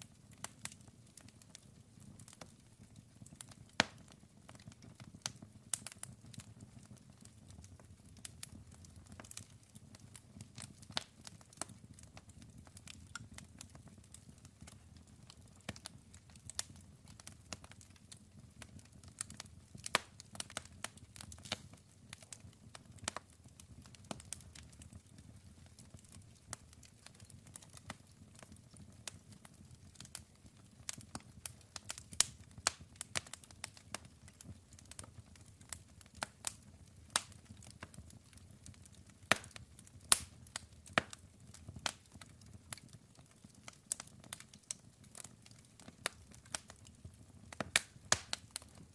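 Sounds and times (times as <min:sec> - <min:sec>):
burning wood crackling and popping: 0:00.0 - 0:48.9.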